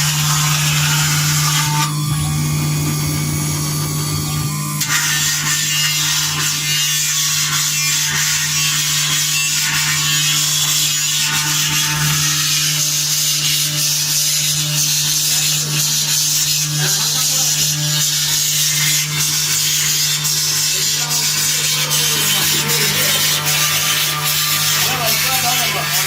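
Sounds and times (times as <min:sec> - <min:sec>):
spindle hum: 0:00.0 - 0:06.6
cutter engraving metal hiss: 0:00.0 - 0:26.0.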